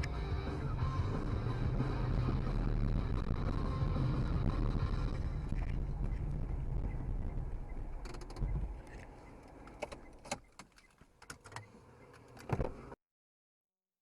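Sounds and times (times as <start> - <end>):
low vehicle rumble: 0.0 - 10.2
sharp clicks and knocks: 7.9 - 12.8.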